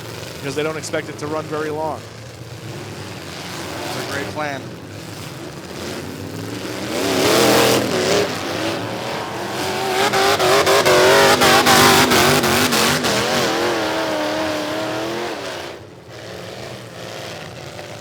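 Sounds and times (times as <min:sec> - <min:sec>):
truck engines revving: 0:00.0 - 0:18.0.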